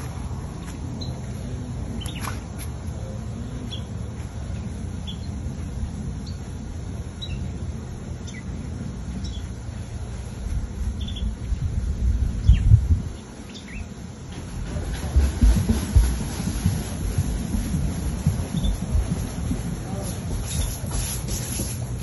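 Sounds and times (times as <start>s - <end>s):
steady low rumble: 0.0s - 22.0s
small birds chirping: 0.6s - 11.7s, 12.3s - 14.1s, 18.2s - 19.3s.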